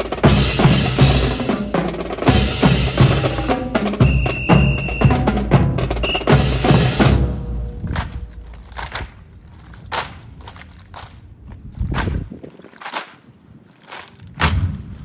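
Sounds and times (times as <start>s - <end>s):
high held tone: 4.0s - 7.0s
boots stamping: 7.6s - 14.8s
rifles slapped and struck on ground: 7.8s - 11.2s, 11.8s - 14.8s.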